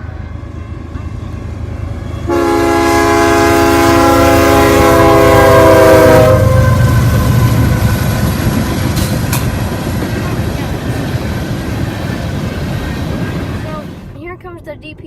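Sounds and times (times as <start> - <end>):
low rumble of train: 0.0 - 15.0
locomotive air horn blast: 2.3 - 8.0.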